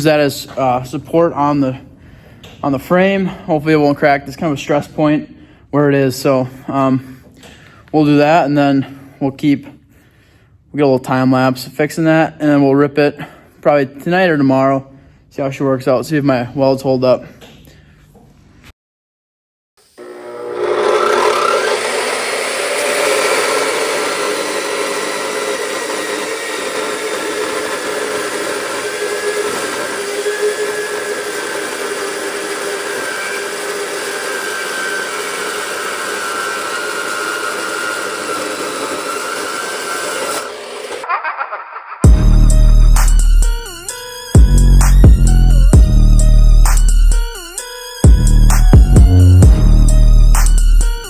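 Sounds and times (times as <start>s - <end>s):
power tool cutting steel plate: 19.8s - 41.1s, 42.0s - 51.0s.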